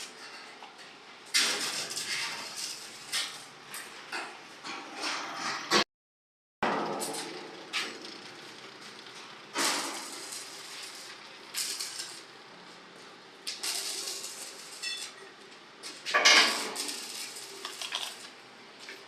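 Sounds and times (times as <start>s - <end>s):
steel pieces clanking: 13.5s - 15.2s, 16.1s - 18.3s.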